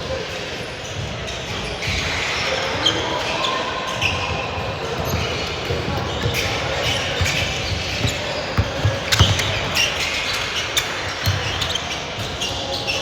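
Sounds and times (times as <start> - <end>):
basketball bouncing on gym floor: 4.9 - 10.2, 10.8 - 12.4.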